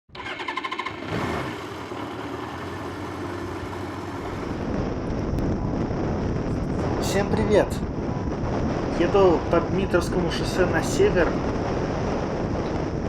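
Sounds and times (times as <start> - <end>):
motorcycle engine running: 0.1 - 7.1.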